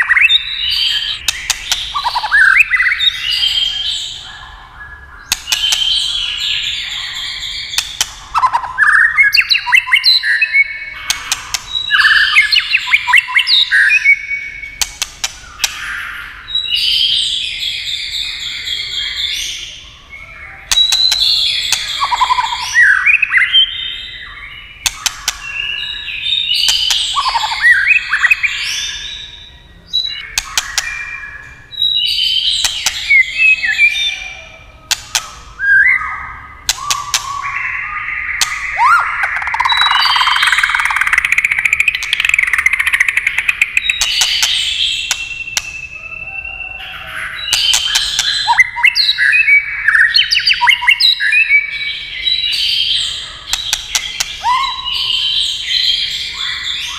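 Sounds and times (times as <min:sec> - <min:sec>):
sharp bird clicks: 0:00.0 - 0:03.6, 0:05.2 - 0:06.5, 0:07.5 - 0:16.4, 0:20.7 - 0:23.8, 0:24.8 - 0:28.5, 0:30.0 - 0:34.0, 0:34.9 - 0:46.2, 0:47.4 - 0:51.7, 0:52.6 - 0:55.2
bird singing whistled phrases: 0:00.0 - 0:56.9.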